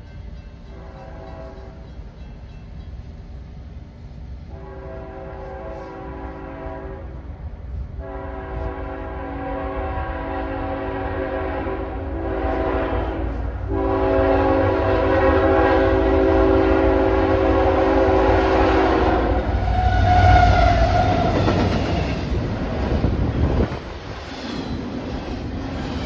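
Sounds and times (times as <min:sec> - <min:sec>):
train rushing by: 0:00.0 - 0:26.0
locomotive air horn: 0:00.7 - 0:01.9, 0:04.4 - 0:21.8.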